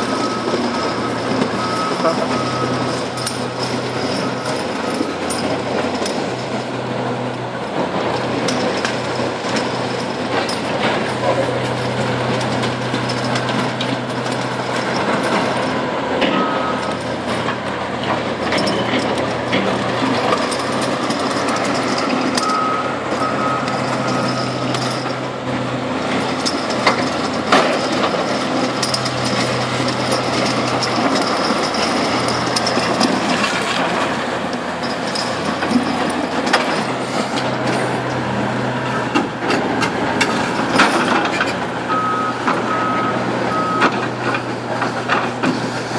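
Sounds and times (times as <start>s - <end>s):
heavy diesel machinery running: 0.0s - 45.9s
backup alarm beeps: 0.2s - 2.9s.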